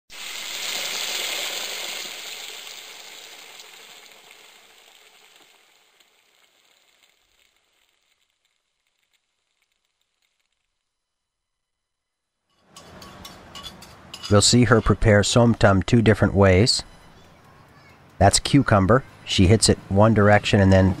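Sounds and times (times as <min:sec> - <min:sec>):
food sizzling: 0:00.1 - 0:11.8.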